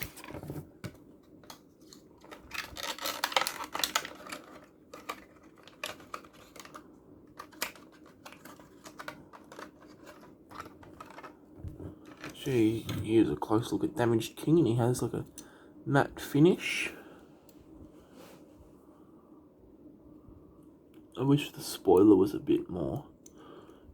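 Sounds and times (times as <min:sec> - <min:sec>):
plastic packaging rustling: 0:00.0 - 0:13.1
plastic toy cars clicking: 0:02.2 - 0:11.4.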